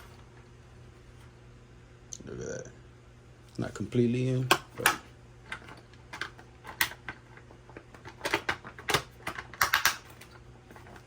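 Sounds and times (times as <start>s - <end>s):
plastic parts clicking: 4.5s - 11.0s.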